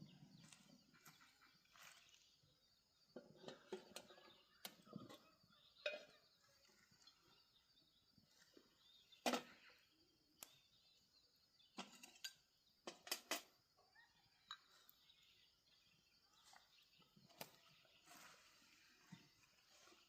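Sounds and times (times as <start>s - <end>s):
sharp snaps and crackles: 10.3s - 10.8s.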